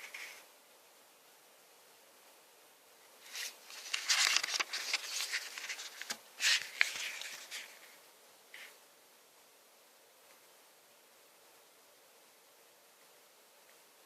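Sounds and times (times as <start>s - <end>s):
packaging rustling: 3.3s - 7.8s.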